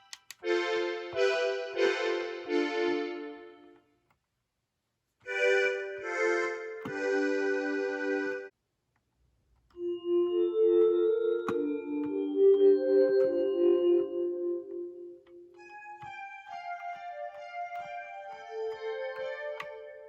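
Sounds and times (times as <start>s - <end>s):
electric piano chords: 0.0s - 3.8s, 5.3s - 8.5s, 9.8s - 20.0s
keyboard patch playing: 0.0s - 3.8s, 5.2s - 8.5s, 9.8s - 20.0s.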